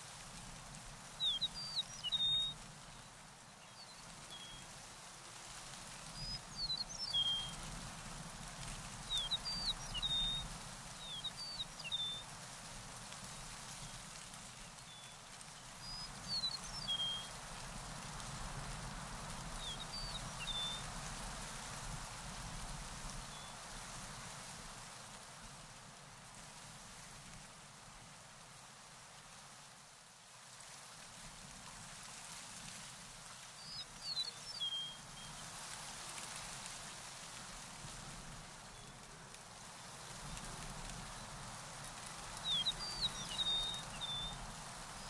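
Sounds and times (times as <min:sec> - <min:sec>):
songbird chirps and whistles: 0:01.2 - 0:02.5
steady rushing hiss: 0:01.9 - 0:45.0.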